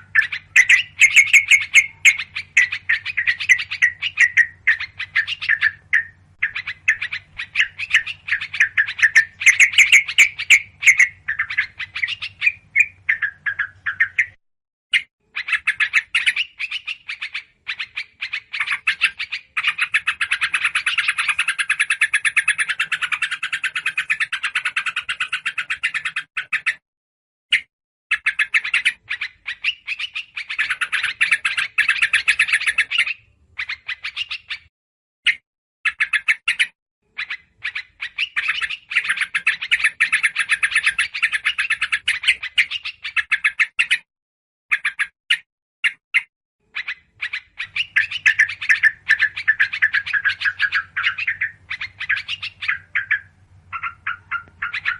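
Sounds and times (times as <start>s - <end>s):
small birds chirping: 0.0s - 26.8s, 27.5s - 44.1s, 44.7s - 54.9s.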